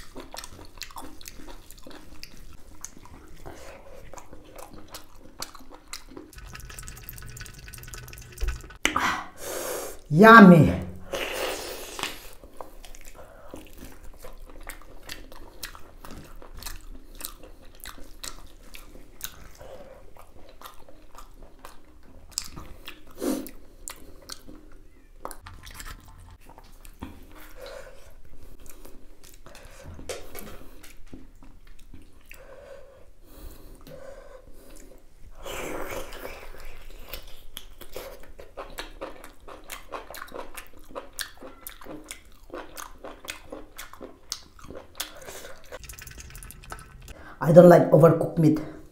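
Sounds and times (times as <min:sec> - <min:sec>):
mouth chewing meat: 0:00.0 - 0:08.8, 0:11.9 - 0:29.8, 0:35.7 - 0:45.9.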